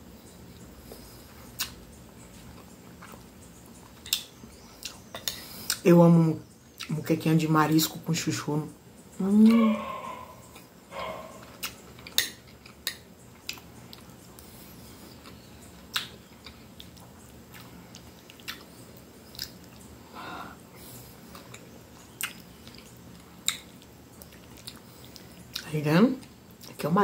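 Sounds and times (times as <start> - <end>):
chewing and mouth sounds: 0.3 - 5.9, 9.4 - 20.0, 21.1 - 26.8.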